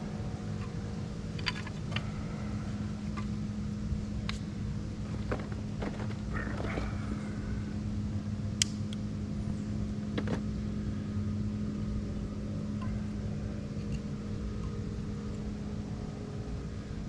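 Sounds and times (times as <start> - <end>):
distant motorboat engine drone: 0.0 - 17.0
sharp snaps: 8.6 - 9.0.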